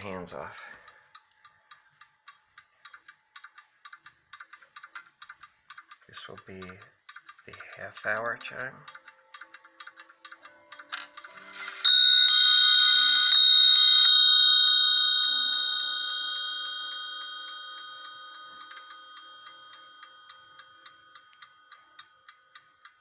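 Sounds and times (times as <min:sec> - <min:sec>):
clock ticking: 0:00.0 - 0:13.4, 0:15.3 - 0:23.0
clock bells striking: 0:11.3 - 0:23.0.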